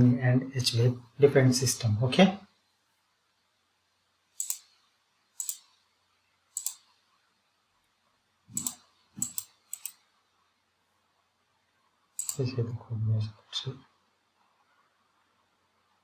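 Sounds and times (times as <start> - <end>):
computer mouse clicking: 4.4 - 4.8, 5.4 - 5.8, 6.5 - 6.9, 8.5 - 10.0, 12.2 - 12.4.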